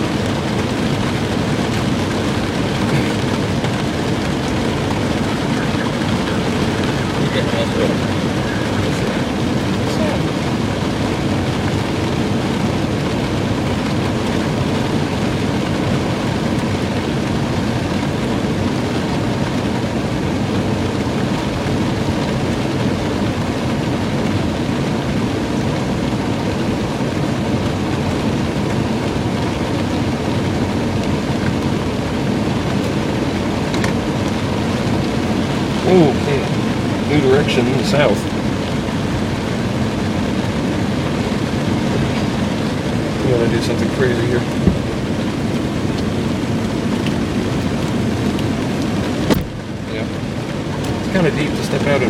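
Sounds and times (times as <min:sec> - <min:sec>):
air conditioning blowing: 0:00.0 - 0:52.0
car engine running: 0:00.0 - 0:52.0
rain falling on a vehicle: 0:00.0 - 0:52.0.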